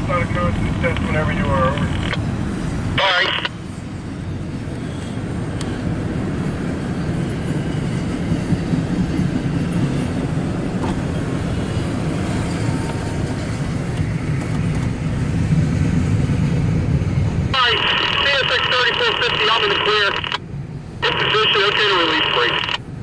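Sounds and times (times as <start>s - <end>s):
train wheels on rails: 0.0s - 17.5s.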